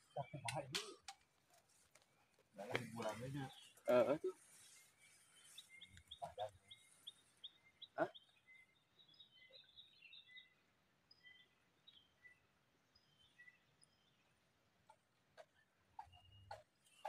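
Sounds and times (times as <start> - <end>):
forest birdsong: 0.0 - 17.0.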